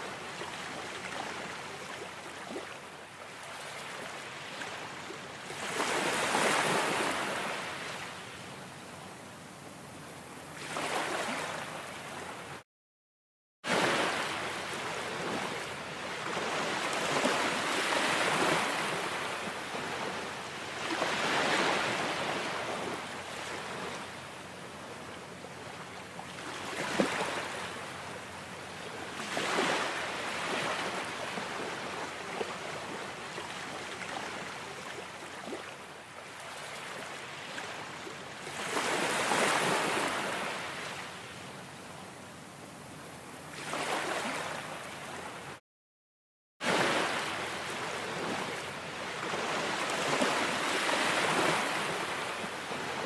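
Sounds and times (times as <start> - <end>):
ocean waves washing: 13.7 - 23.8, 46.6 - 53.0.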